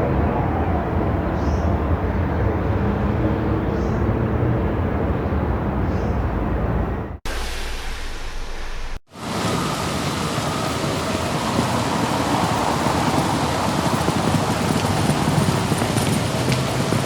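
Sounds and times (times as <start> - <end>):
car road noise: 8.1 - 17.0.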